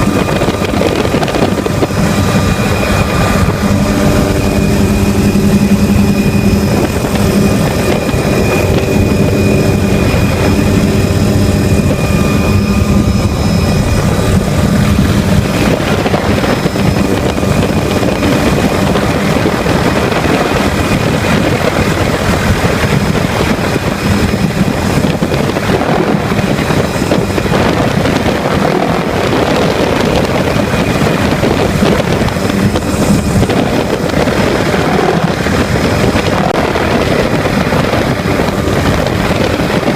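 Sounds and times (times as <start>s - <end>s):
helicopter engine and rotors: 0.0s - 39.9s.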